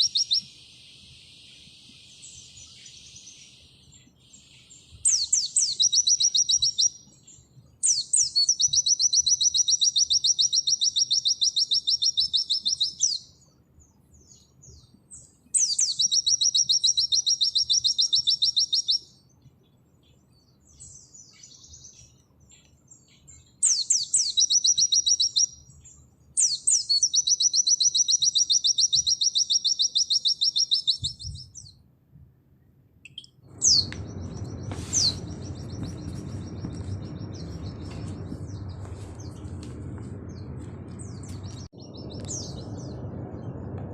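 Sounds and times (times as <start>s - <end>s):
bird singing fast high trills: 0.0s - 13.4s, 15.6s - 19.2s, 23.6s - 25.7s, 26.4s - 31.8s, 33.1s - 39.4s.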